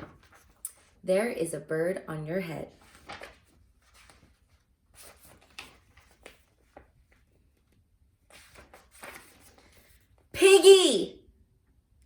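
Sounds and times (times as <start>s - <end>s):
paper pages rustling: 0.0s - 1.0s, 2.7s - 10.3s.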